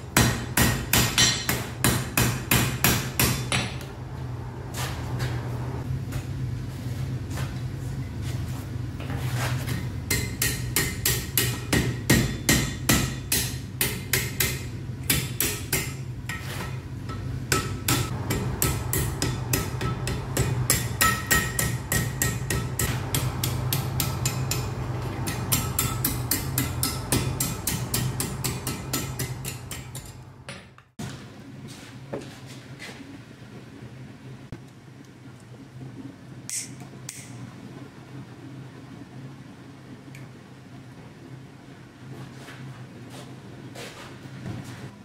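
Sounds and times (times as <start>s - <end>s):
low steady hum: 0.0s - 45.0s
hammer striking iron on anvil: 0.2s - 3.8s, 9.7s - 30.8s.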